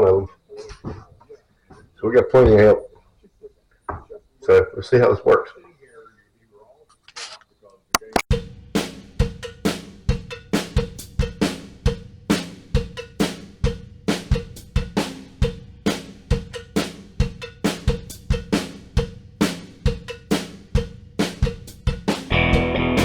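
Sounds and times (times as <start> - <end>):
drum kit beat: 8.0 - 23.0.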